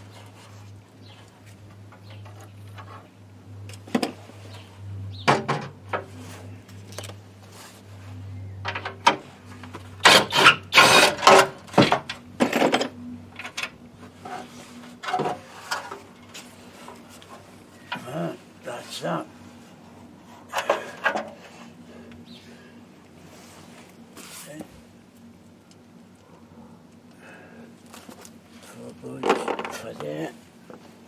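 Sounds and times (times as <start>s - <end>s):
steady low hum: 0.0s - 31.0s
tools and parts clattering: 8.6s - 18.1s, 20.4s - 21.5s, 29.2s - 30.1s.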